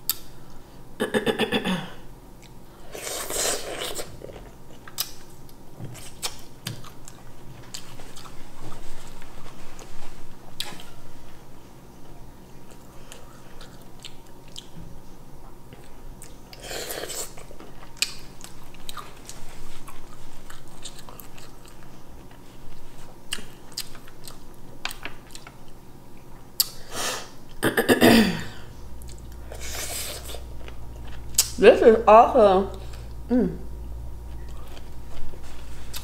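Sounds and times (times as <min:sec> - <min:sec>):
person chewing seafood: 0:02.4 - 0:08.9, 0:12.6 - 0:14.8, 0:15.8 - 0:25.8, 0:28.9 - 0:31.6, 0:34.3 - 0:36.0
small mouth clicks: 0:26.6 - 0:26.8.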